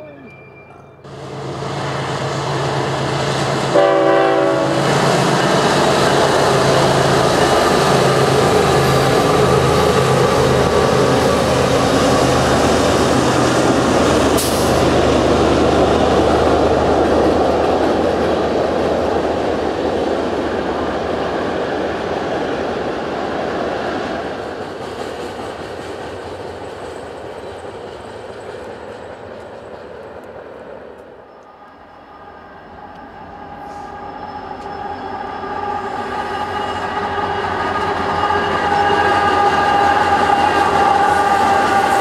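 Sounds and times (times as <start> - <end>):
diesel locomotives droning: 0.0 - 42.0
locomotive horn blast: 3.7 - 5.0, 33.6 - 42.0.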